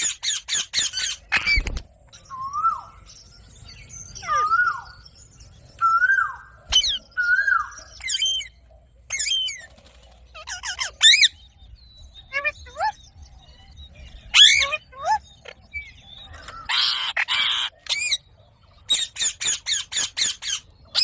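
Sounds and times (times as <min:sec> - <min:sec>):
parakeet whistling and squawking: 0:00.0 - 0:01.7, 0:10.4 - 0:11.4, 0:14.3 - 0:15.2, 0:16.6 - 0:18.2.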